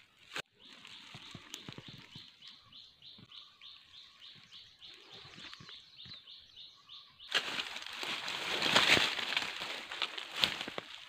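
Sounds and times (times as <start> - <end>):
rustling of leaves and brush: 0.0 - 6.2, 7.2 - 11.0
high bird chirp: 0.5 - 7.4.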